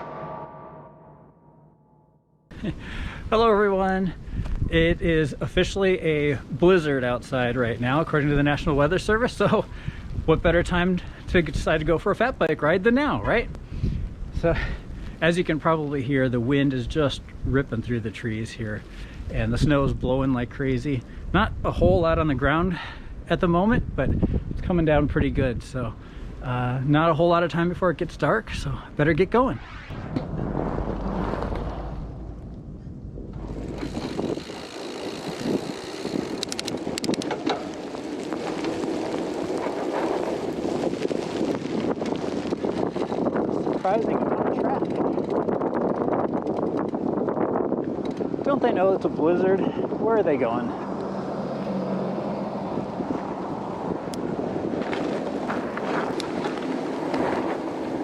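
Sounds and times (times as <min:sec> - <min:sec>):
wind buffeting microphone: 0:02.6 - 0:26.4, 0:27.7 - 0:58.0
bike riding off: 0:29.6 - 0:58.0
sharp clicks: 0:36.4 - 0:37.6.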